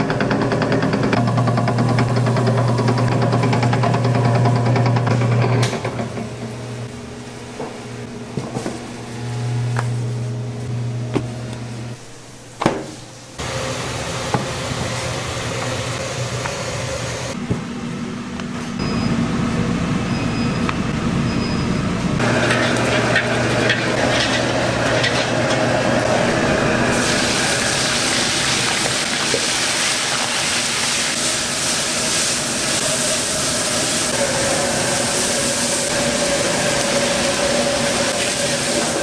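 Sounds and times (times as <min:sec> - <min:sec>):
loud cooking roar: 0:00.0 - 0:39.0
kitchen clatter: 0:22.2 - 0:33.0
food sizzling: 0:26.4 - 0:39.0.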